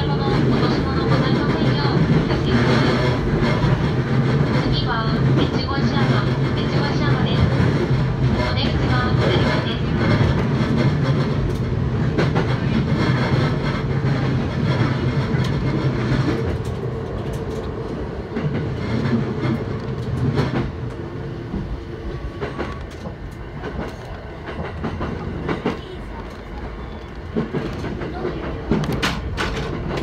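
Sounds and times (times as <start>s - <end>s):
train car rumbling on rails: 0.0s - 30.0s
wheels clicking over rail joints: 22.4s - 30.0s.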